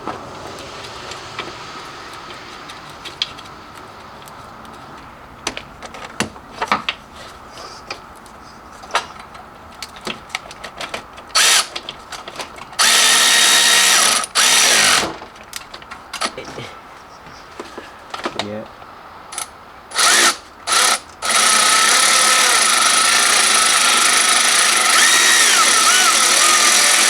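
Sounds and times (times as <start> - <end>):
hand tools and metal parts clinking: 0.0 - 16.7
power drill running: 11.4 - 11.7, 12.8 - 15.1, 19.3 - 27.0.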